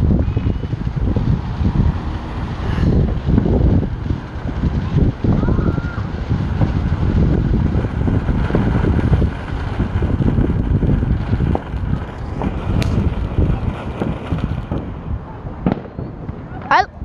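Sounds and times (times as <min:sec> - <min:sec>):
firework fountain hissing: 0:00.0 - 0:17.0
wind buffeting microphone: 0:00.0 - 0:17.0
sharp pop: 0:12.4 - 0:13.1, 0:15.7 - 0:16.4.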